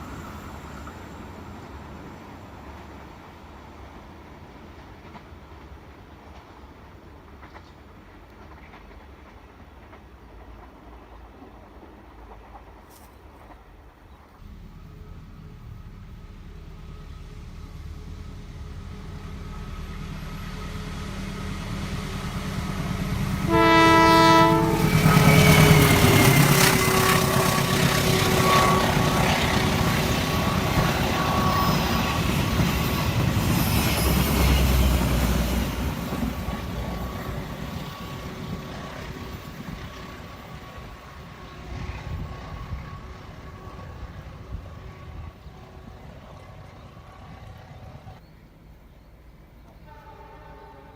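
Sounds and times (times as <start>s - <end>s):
train wheels rumbling on rail: 0.0s - 50.9s
train horn blast: 23.3s - 32.2s, 49.8s - 50.9s.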